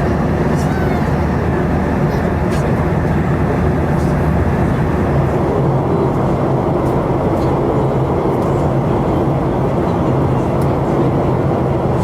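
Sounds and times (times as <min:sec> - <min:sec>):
jet engines and airflow rushing: 0:00.0 - 0:12.0.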